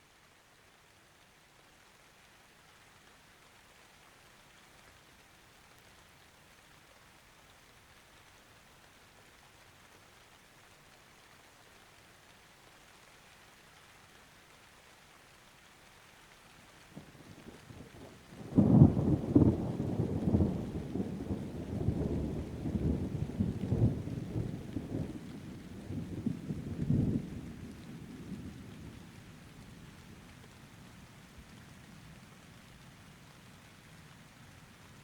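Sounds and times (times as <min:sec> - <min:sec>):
steady rain: 0:00.0 - 0:35.0
thunder rumbling: 0:17.0 - 0:30.1.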